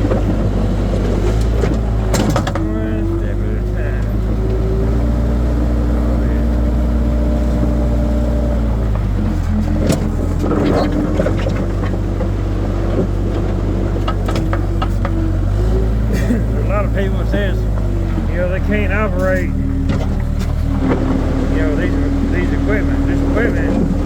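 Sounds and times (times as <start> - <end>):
metal knocks and clanks: 0.0 - 2.8
skid steer engine running: 0.0 - 24.0.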